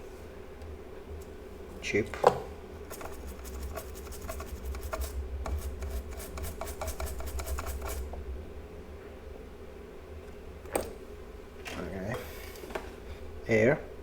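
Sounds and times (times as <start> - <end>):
steady low hum: 0.0 - 14.0
scratching and scraping strokes: 2.8 - 8.2.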